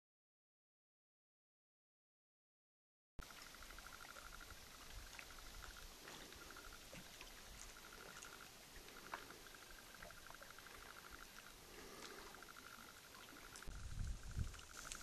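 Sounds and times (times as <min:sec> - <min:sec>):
rapid pulsing chirr: 0:03.2 - 0:15.0.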